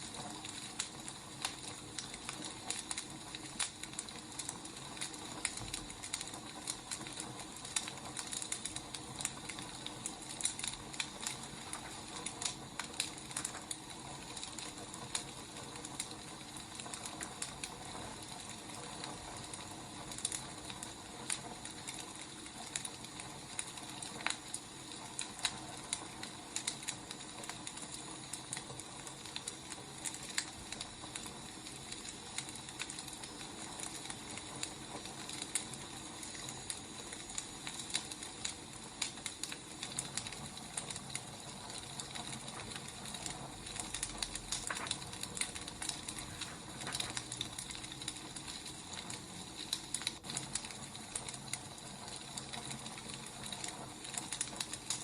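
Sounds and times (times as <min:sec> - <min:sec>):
fire hissing: 0:00.0 - 0:55.0
wood fire popping and snapping: 0:00.0 - 0:55.0.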